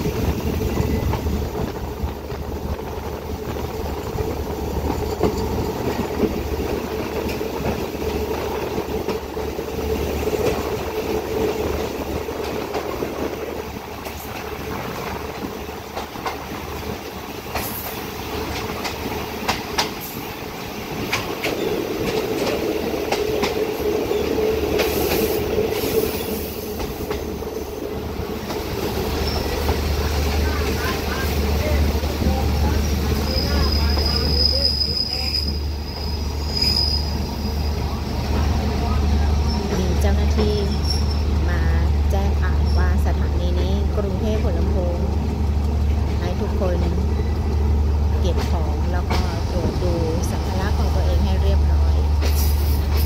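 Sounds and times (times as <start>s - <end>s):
train wheels rumbling on track: 0.0s - 53.0s
high wheel squeals: 33.1s - 37.8s.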